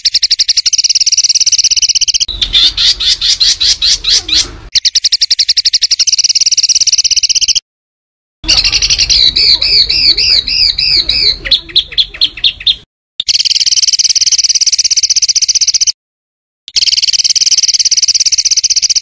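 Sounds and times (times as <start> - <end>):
songbird singing: 0.0 - 7.6, 8.4 - 16.0, 16.7 - 19.0.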